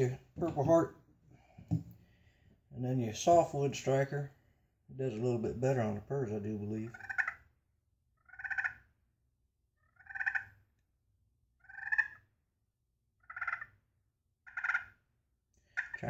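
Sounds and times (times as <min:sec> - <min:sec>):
turkey call purrs: 0:08.2 - 0:08.9, 0:09.8 - 0:10.6, 0:11.6 - 0:12.3, 0:13.2 - 0:13.8, 0:14.5 - 0:15.0, 0:15.7 - 0:16.0.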